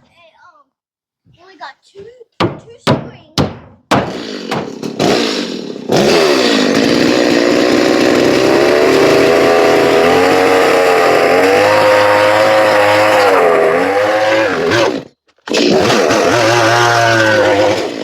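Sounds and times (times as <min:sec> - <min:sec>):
chainsaw cutting wood: 0:03.9 - 0:18.0.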